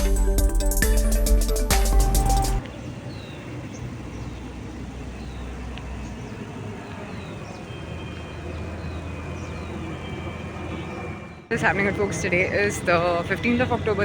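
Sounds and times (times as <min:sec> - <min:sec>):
bird chirps: 0:02.3 - 0:12.1.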